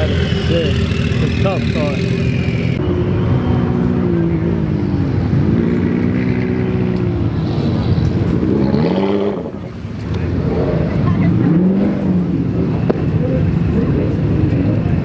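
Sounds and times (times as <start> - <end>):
car engine running: 0.0 - 2.8.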